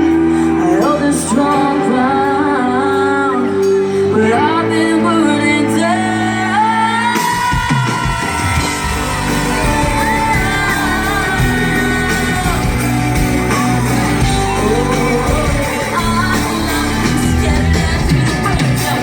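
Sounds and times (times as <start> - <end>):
live pop-rock band: 0.0 - 19.0
person singing: 0.0 - 19.0
crowd shouting: 7.2 - 19.0.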